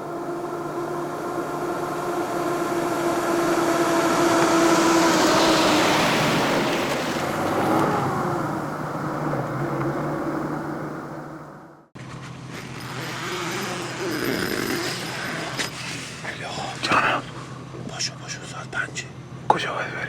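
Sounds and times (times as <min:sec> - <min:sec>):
vehicle driving past: 0:00.0 - 0:14.1.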